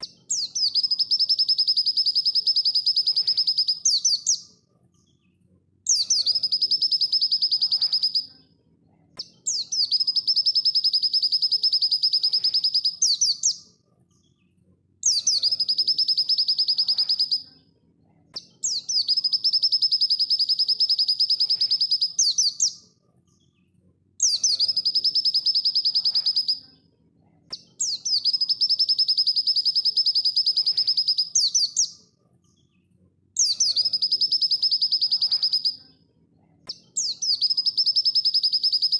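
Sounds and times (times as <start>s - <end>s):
bird song rattling trill: 0.0s - 4.4s, 5.9s - 8.3s, 9.5s - 13.6s, 15.0s - 17.4s, 18.7s - 22.8s, 24.2s - 26.6s, 27.8s - 31.9s, 33.4s - 35.8s, 37.0s - 38.9s.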